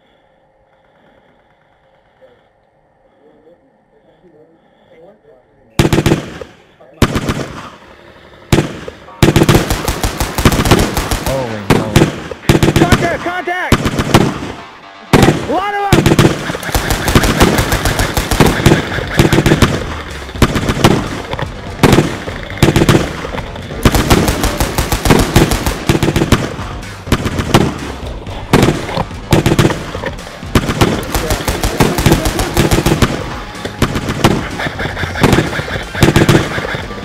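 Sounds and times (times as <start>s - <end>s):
automatic gunfire bursts: 5.8s - 7.8s, 8.5s - 37.0s
battle music: 8.6s - 37.0s.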